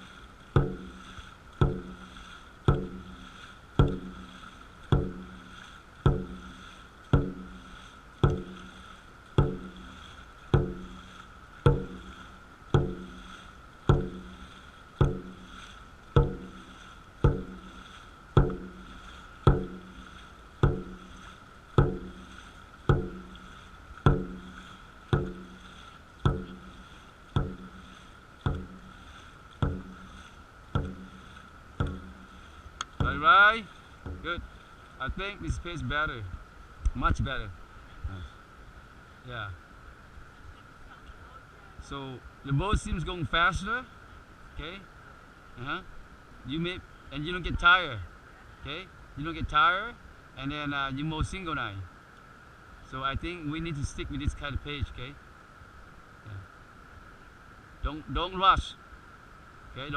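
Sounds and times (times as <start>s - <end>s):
drum struck on steady beat: 0.0s - 35.6s.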